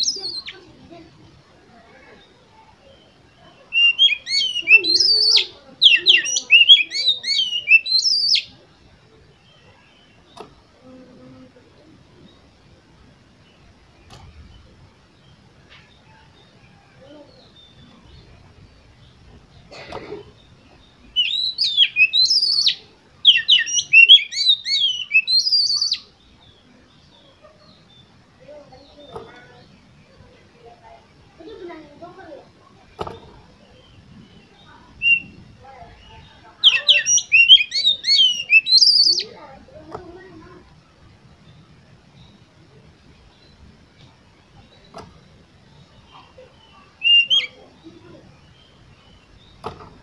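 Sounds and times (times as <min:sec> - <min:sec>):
bird whistled song: 0:00.0 - 0:00.6, 0:03.7 - 0:08.6, 0:20.4 - 0:26.1, 0:33.0 - 0:35.4, 0:36.0 - 0:39.4, 0:44.6 - 0:47.8.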